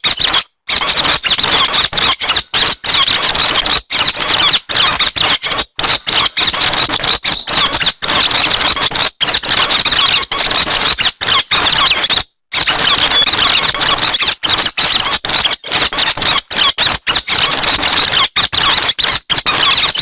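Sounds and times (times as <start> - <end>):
recorded bird chatter: 0.0 - 20.0.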